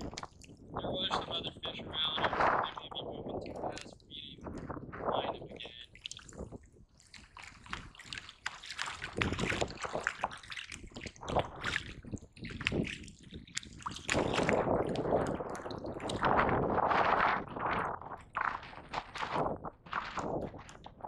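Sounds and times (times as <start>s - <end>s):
small splashes and knocks: 0.0s - 0.6s, 5.7s - 16.6s
water sloshing and dripping: 0.0s - 1.1s, 5.6s - 21.0s
steady rush of water: 5.2s - 17.2s.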